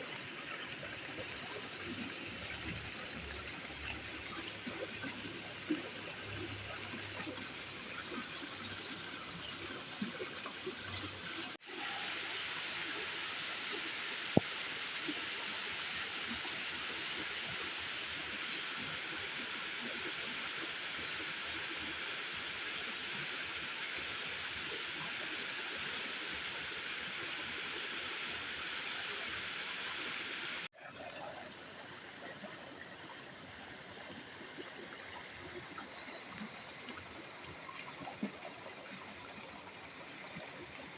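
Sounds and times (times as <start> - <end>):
water rushing: 0.0 - 32.5.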